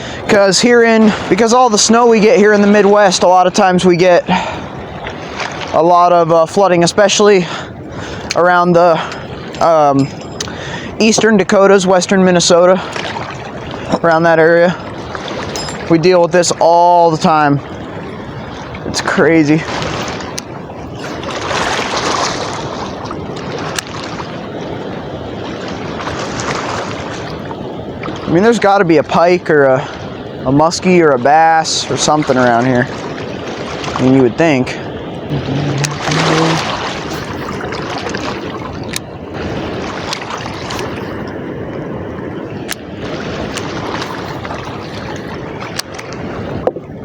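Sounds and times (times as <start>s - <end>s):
floodwater rushing: 0.0s - 47.0s
wind buffeting microphone: 0.0s - 47.0s.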